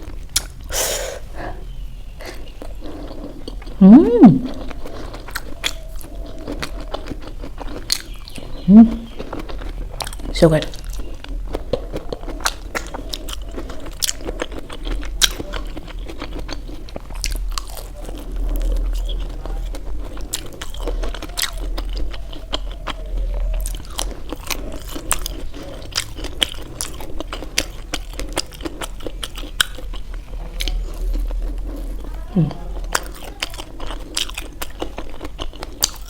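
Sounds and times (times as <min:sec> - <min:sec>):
chewing dumplings: 0:00.0 - 0:36.0
low hum: 0:02.9 - 0:04.8.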